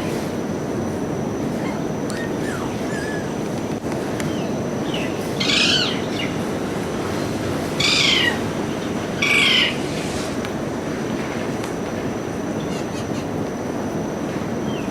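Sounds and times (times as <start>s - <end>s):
parrot calling: 1.5s - 3.5s, 4.4s - 6.4s, 7.8s - 8.5s, 9.2s - 9.8s, 12.6s - 13.3s.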